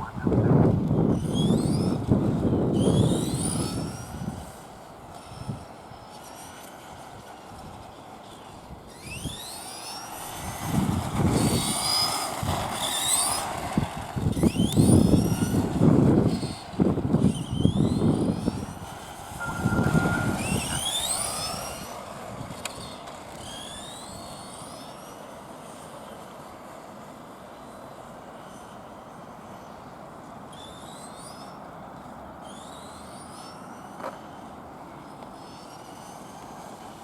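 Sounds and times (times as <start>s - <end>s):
toy truck motor whining: 0.0s - 37.0s
wheels rumbling: 0.0s - 37.0s.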